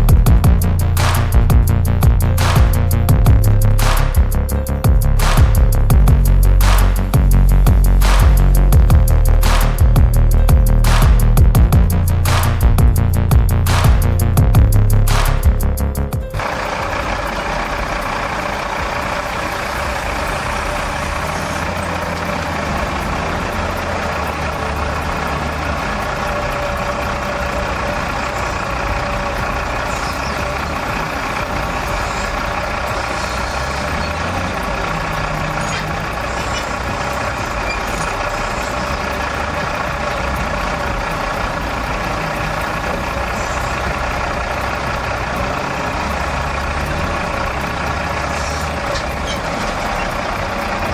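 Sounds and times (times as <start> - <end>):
heavy vehicle engine running: 0.0 - 50.9.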